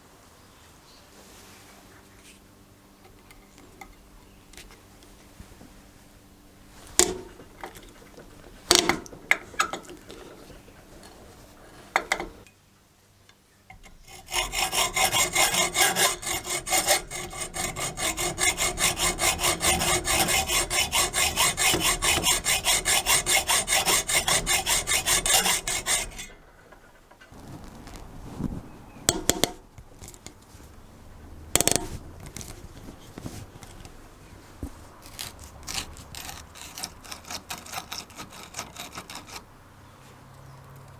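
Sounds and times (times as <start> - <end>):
scraping rust off metal tool: 13.7 - 27.0, 29.0 - 30.4, 31.6 - 34.0, 34.6 - 39.5
metal tool knocks: 29.1 - 29.6.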